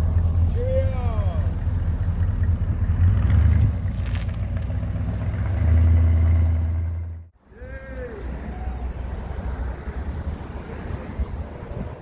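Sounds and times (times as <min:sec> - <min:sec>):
car engine idling: 0:00.0 - 0:03.3.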